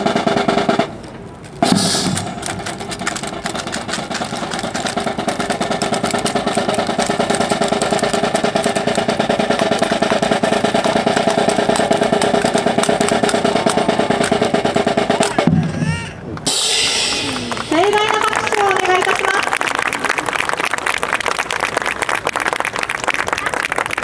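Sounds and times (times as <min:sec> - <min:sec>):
snare drums playing cadence: 0:00.0 - 0:19.0.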